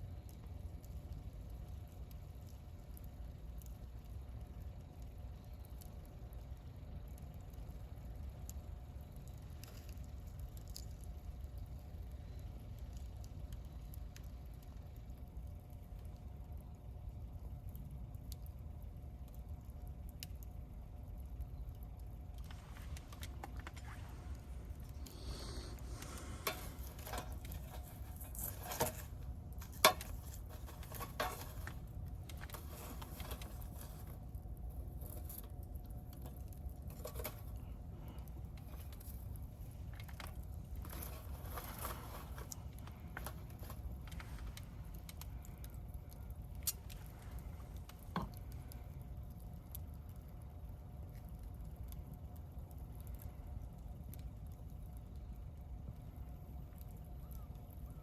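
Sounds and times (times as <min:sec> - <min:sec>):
campfire rumble: 0:00.0 - 0:58.0
fire crackling and popping: 0:00.0 - 0:58.0.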